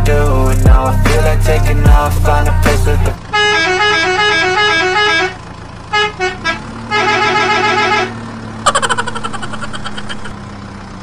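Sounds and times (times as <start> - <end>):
low engine hum: 0.0 - 11.0
truck horn honking: 3.2 - 8.9.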